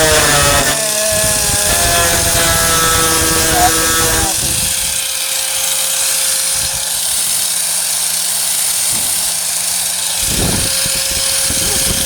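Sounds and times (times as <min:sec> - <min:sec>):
angle grinder cutting metal: 0:00.0 - 0:12.0.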